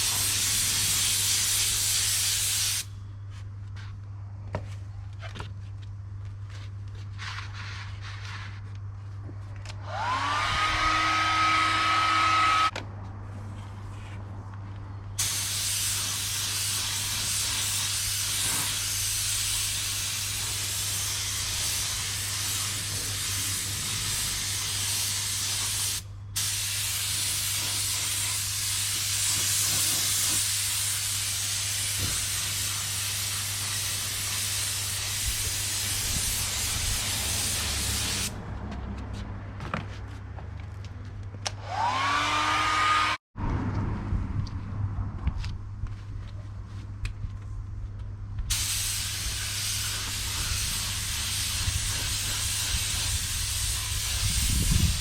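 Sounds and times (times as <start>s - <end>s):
paint spraying hiss: 0.0s - 2.9s, 15.2s - 38.3s, 48.5s - 55.0s
blower motor whining: 9.8s - 12.7s, 41.6s - 43.2s.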